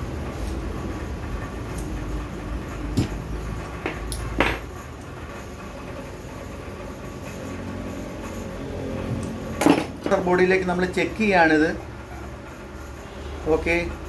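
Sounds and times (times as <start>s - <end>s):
steady low hum: 0.0s - 14.0s
metal parts knocking and scraping: 2.9s - 5.1s, 9.0s - 10.2s.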